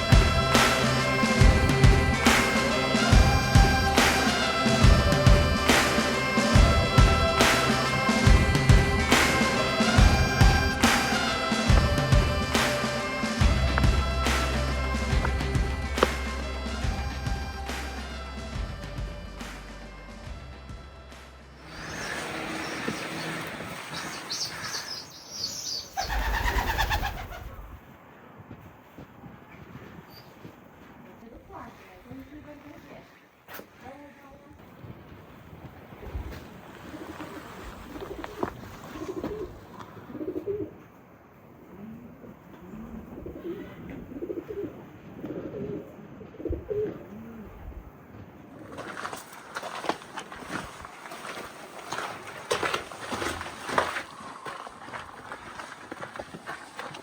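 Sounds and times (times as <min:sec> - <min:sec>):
pigeons cooing: 0:00.0 - 0:17.6, 0:21.7 - 0:27.7, 0:36.7 - 0:40.9, 0:41.6 - 0:47.9
loud rush of noise: 0:00.0 - 0:18.2
birds chirping and calling: 0:00.0 - 0:18.6, 0:21.7 - 0:27.6
low rumble: 0:00.0 - 0:21.7
outdoor background noise: 0:00.0 - 0:57.0.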